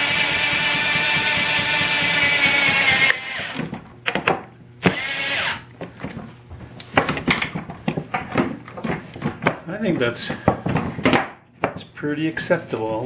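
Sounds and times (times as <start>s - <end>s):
power drill driving screws: 0.0s - 3.8s, 4.8s - 5.6s.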